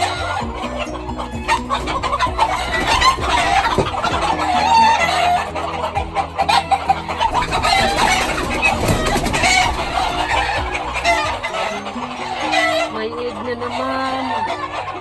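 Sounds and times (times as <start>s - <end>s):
background music: 0.0s - 15.0s
chickens clucking: 0.0s - 15.0s.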